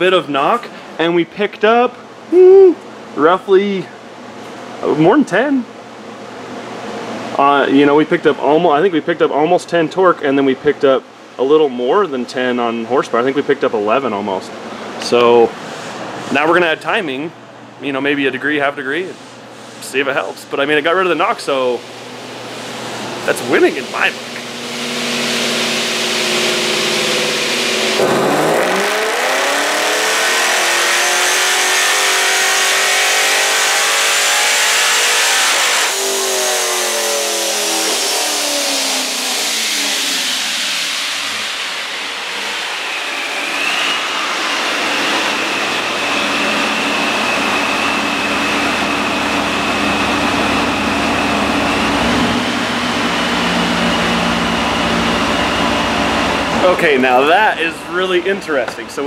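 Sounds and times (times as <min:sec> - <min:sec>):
supercharger whine: 0:20.9 - 0:59.0
car engine revving: 0:23.2 - 0:58.2.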